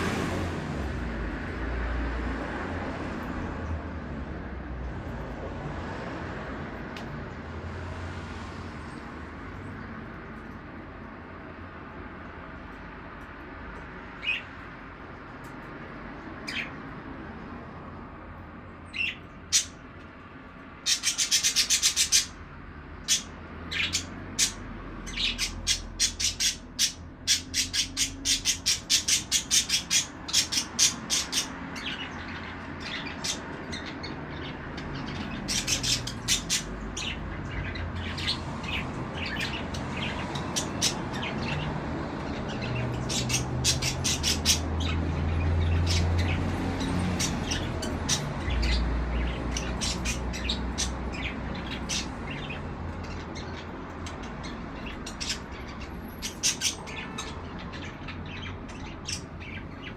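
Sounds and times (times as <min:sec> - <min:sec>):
budgerigars chirping: 0:16.4 - 0:16.8, 0:18.9 - 0:19.8, 0:20.8 - 0:22.4, 0:23.0 - 0:59.9.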